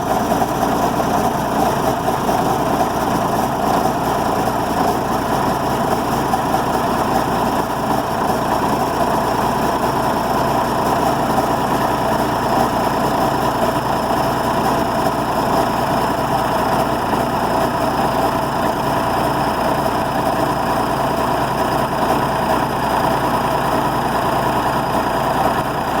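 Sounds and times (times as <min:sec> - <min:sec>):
diesel tractor engine idling: 0:00.0 - 0:26.0.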